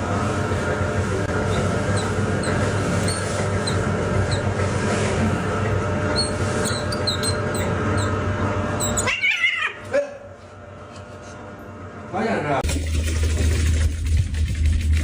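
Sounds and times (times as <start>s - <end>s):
cat meowing: 8.8s - 9.9s.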